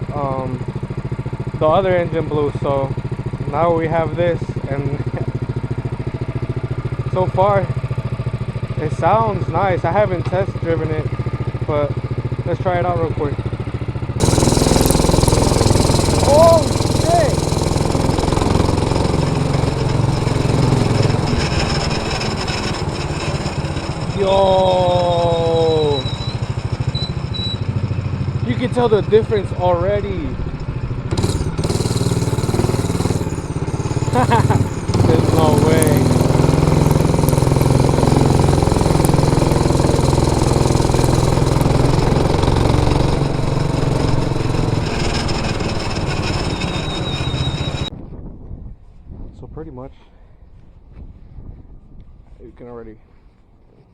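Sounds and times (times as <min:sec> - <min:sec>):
small engine running rasping: 0:00.0 - 0:47.9.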